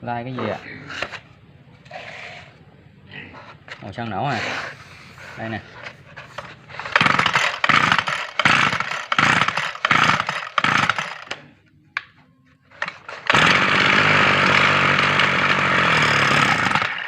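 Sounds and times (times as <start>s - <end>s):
brush cutter engine starting: 6.4s - 11.4s, 12.8s - 17.0s.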